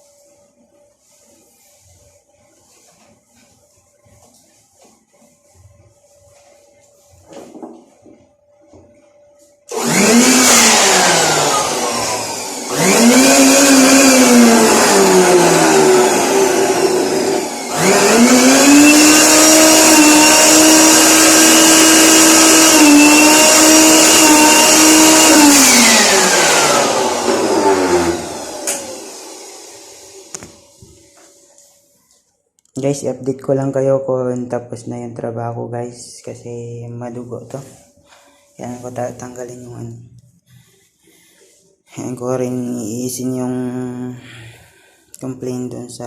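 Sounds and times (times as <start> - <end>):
pressure washer motor whining: 9.7 - 31.1.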